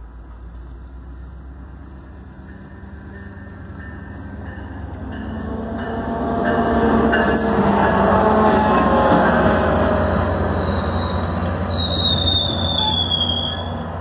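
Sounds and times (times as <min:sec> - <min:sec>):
passenger train rumble: 0:00.0 - 0:14.0.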